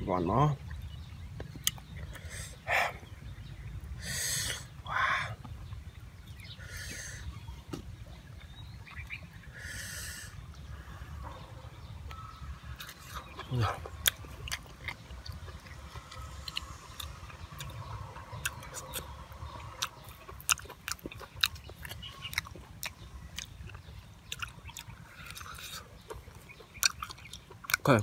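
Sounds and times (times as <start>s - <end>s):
man chewing: 1.4s - 2.6s, 12.1s - 27.9s.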